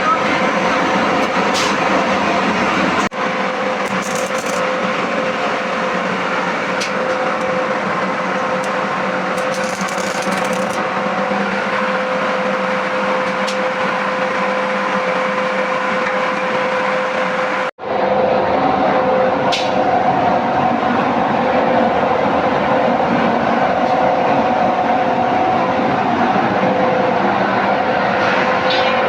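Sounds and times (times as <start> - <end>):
angle grinder cutting metal: 3.8 - 10.9.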